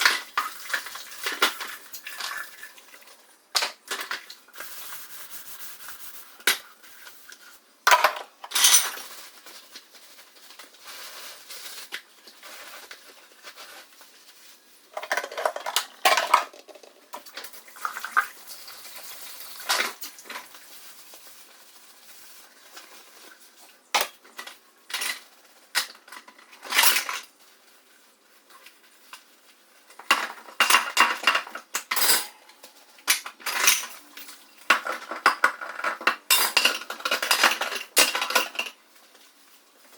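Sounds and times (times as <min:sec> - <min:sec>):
dishes and cutlery clattering: 0:07.9 - 0:09.2, 0:15.0 - 0:17.4, 0:24.0 - 0:27.3, 0:30.0 - 0:38.8.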